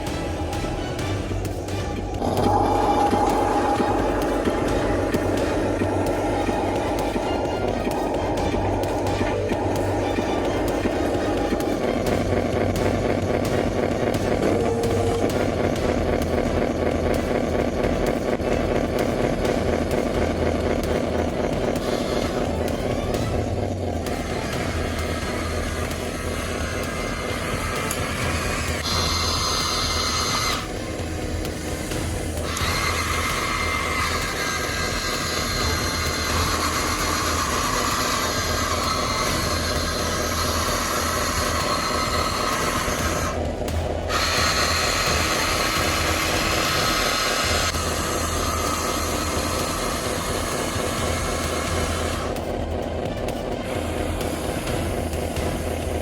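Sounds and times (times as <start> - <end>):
low rumble: 0.0 - 34.1
electric motors and gears whining: 0.0 - 56.0
low hum: 0.0 - 56.0.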